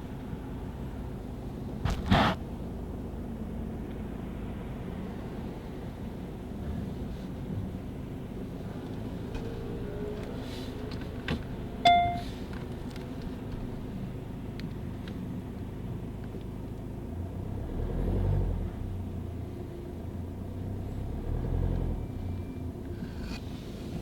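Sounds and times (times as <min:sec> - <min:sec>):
short electronic chime: 0:11.9 - 0:12.3.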